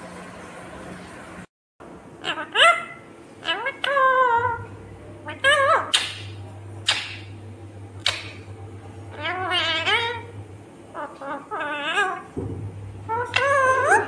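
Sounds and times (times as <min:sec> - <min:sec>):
parrot calling: 0:02.2 - 0:07.3, 0:08.0 - 0:08.5, 0:09.1 - 0:12.4, 0:13.0 - 0:14.0.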